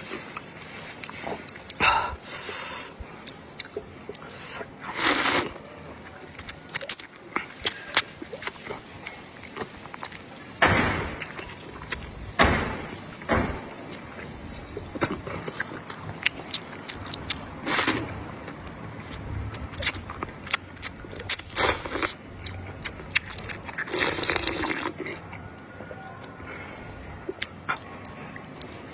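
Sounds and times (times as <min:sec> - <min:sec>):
wet chewing: 0:00.0 - 0:10.6, 0:11.2 - 0:13.0, 0:13.9 - 0:28.9
loud slurps: 0:04.2 - 0:05.6.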